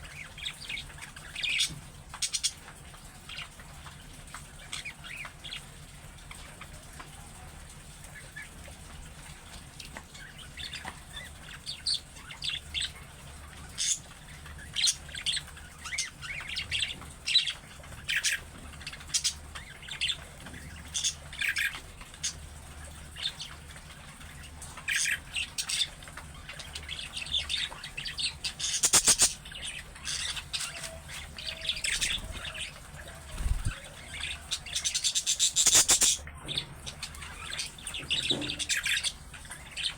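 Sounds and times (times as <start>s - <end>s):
budgerigars chirping and warbling: 0.0s - 6.8s, 9.2s - 39.9s.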